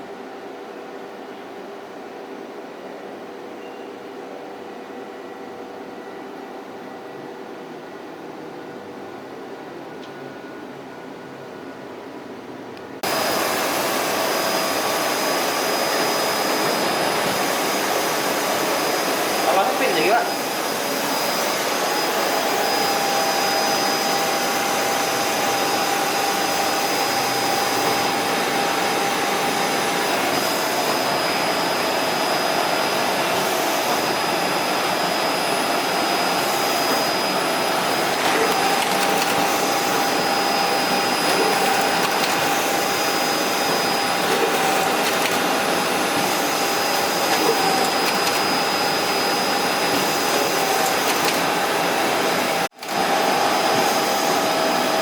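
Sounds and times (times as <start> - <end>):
printer machine whir: 8.4 - 55.0
high steady whine: 13.0 - 55.0.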